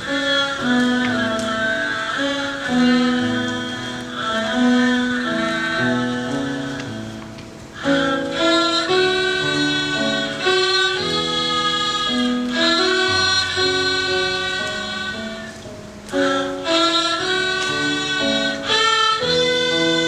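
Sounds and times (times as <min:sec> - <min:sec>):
bowed fiddle melody: 0:07.8 - 0:15.6, 0:16.2 - 0:20.0.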